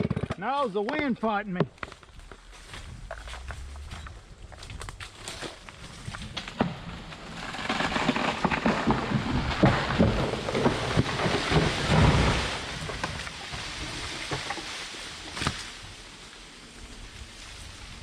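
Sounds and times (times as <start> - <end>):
tree falling through branches: 2.0 - 18.0
tree crashing to ground: 2.6 - 16.3.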